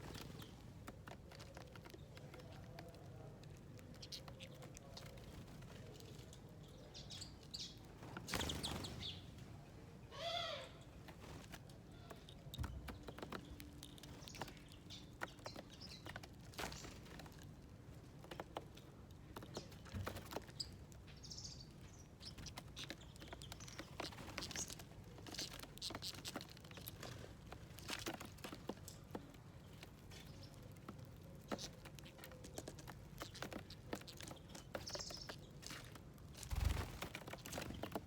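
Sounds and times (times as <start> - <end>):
birds pecking and tapping: 0.0 - 10.0, 10.8 - 38.0
flurry of bird wings: 8.0 - 9.2, 32.9 - 38.0.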